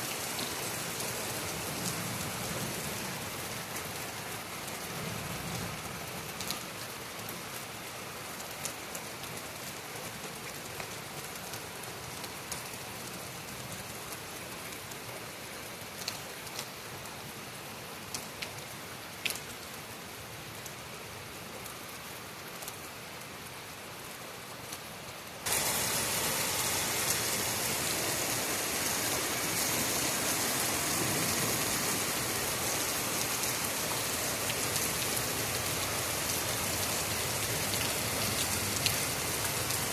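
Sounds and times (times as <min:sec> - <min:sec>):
heavy rain hissing: 0:25.4 - 0:39.9.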